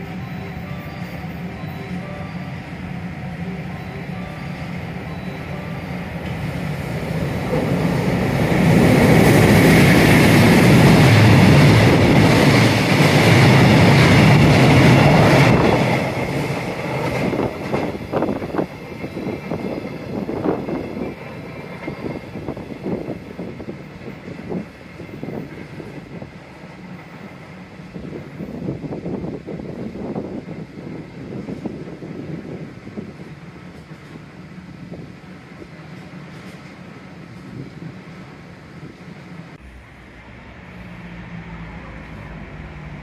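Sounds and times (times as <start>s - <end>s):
train rushing past: 0.0s - 43.0s.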